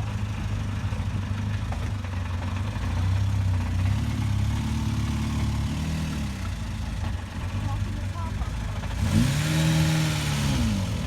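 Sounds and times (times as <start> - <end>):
car engine idling: 6.4 - 9.0.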